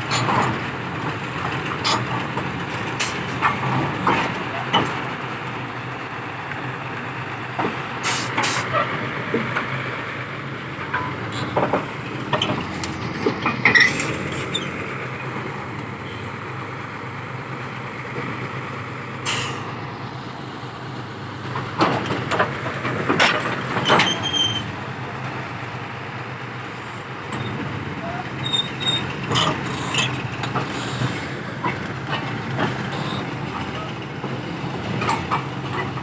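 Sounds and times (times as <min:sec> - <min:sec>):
heavy diesel engine running: 0:00.0 - 0:36.0
metal clanks and knocks: 0:10.8 - 0:14.8, 0:21.5 - 0:24.7, 0:28.3 - 0:36.0.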